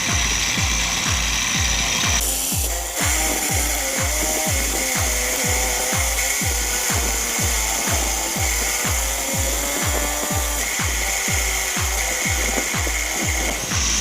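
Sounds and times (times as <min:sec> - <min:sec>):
music with kick-drum beat: 0:00.0 - 0:14.0
steady high whine: 0:00.0 - 0:14.0.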